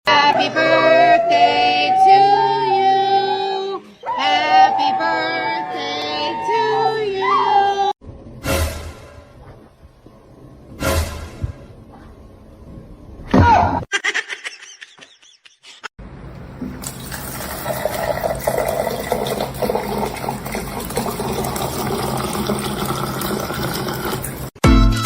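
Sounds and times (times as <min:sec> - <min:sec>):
running water rushing: 0:16.6 - 0:24.6.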